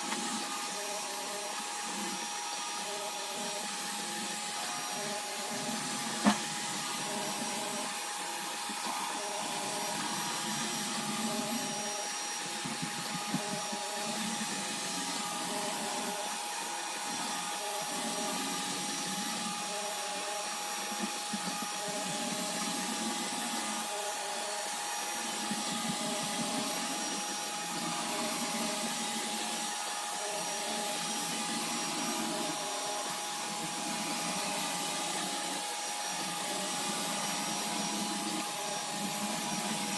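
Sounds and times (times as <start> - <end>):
robot vacuum running: 0.0 - 39.9.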